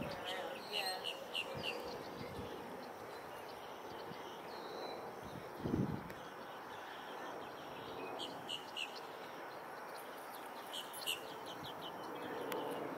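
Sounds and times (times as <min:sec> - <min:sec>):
outdoor background hiss: 0:00.0 - 0:12.9.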